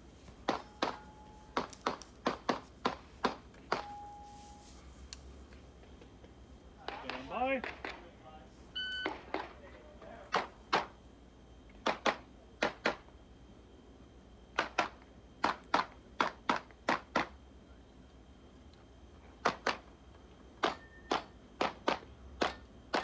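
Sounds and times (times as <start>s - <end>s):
pistol shots: 0.5s - 4.0s, 6.9s - 8.1s.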